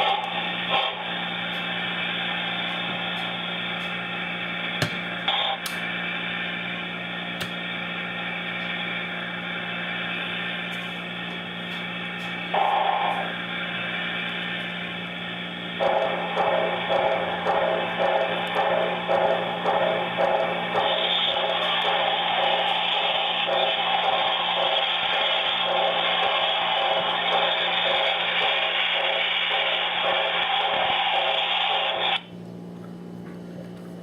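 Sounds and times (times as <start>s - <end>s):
steam locomotive chuffing: 0.0s - 4.7s, 12.5s - 32.3s
steady speaker hum: 0.0s - 34.0s.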